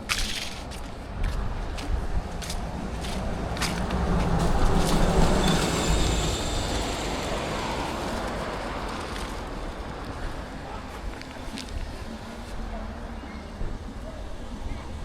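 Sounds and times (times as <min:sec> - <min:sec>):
footsteps on dry leaves: 0:00.0 - 0:10.4
vehicle passing by: 0:02.2 - 0:10.9.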